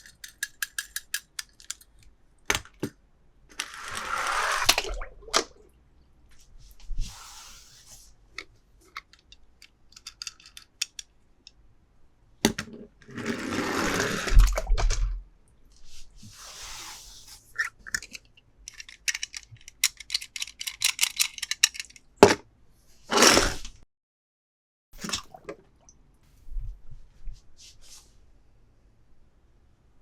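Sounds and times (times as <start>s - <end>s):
plastic toys clicking: 0.0s - 2.9s, 8.9s - 11.1s, 17.8s - 22.2s.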